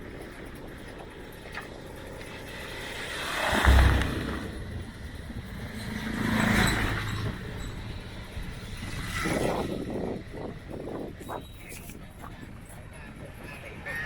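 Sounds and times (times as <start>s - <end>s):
motorbikes passing: 0.0s - 11.2s.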